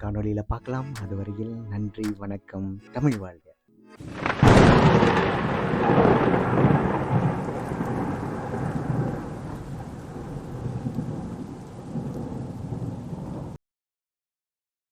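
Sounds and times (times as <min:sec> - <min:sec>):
rain hiss: 0:04.0 - 0:13.4
rumbling thunder: 0:04.0 - 0:13.6.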